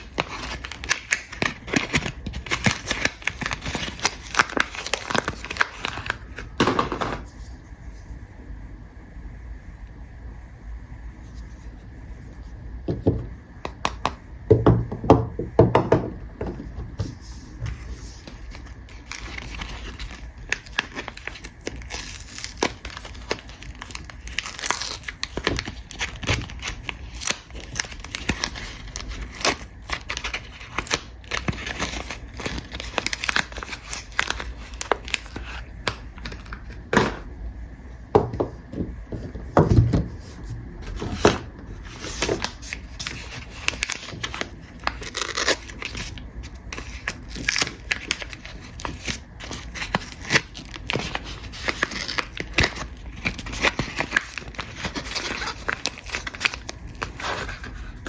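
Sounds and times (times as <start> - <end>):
wrapper crinkling and tearing: 0.0 - 7.2, 17.7 - 37.2, 40.8 - 58.0.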